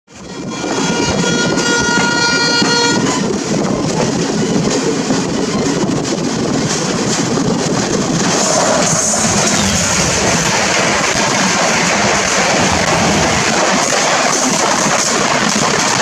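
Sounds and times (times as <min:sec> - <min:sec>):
train horn: 0:00.2 - 0:03.3
train rumbling at speed: 0:00.2 - 0:16.0.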